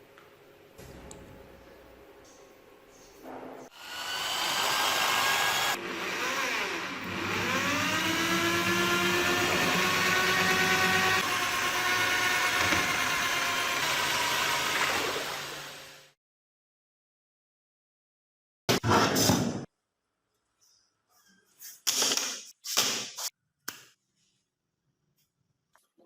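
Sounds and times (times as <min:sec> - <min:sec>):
electric power tool motor whining: 0:03.8 - 0:16.1.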